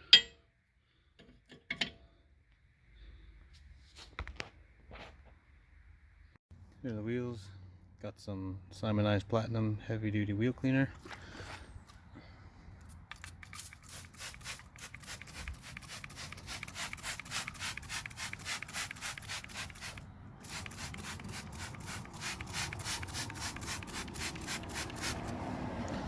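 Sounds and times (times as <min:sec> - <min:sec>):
spray bottle spritzes: 0:13.2 - 0:25.4.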